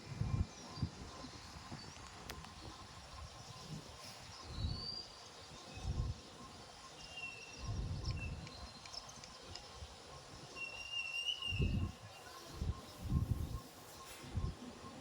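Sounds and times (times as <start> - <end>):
wind gusting against microphone: 11.5 - 13.6.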